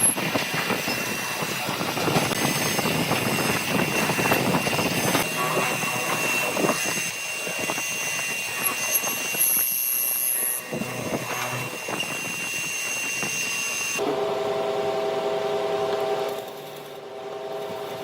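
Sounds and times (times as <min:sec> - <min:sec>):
power tool whine: 0:00.8 - 0:15.0.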